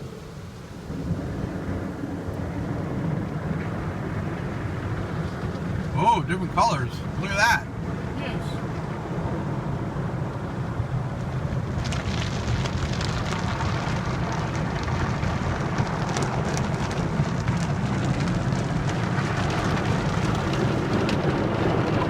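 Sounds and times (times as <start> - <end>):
low hum of car wash equipment: 0.0 - 22.0
water spraying on car: 0.9 - 22.0.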